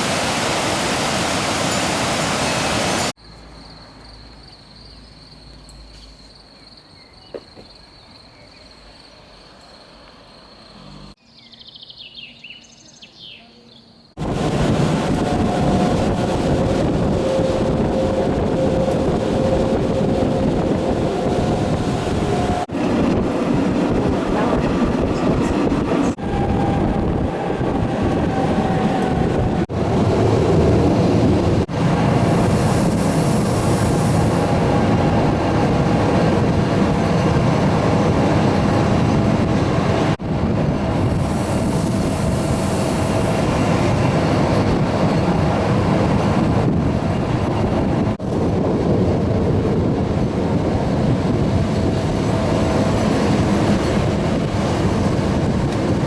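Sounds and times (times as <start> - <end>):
train rumbling on track: 14.2 - 56.0.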